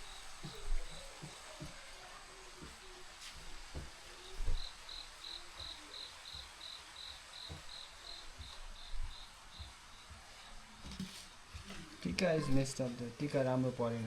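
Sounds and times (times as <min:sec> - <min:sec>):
cricket chirping: 0:04.2 - 0:10.1.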